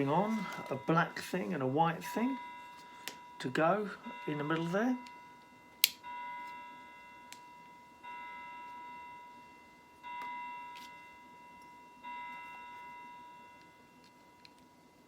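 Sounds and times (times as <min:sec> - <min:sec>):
bell-like chime: 0:00.0 - 0:14.8.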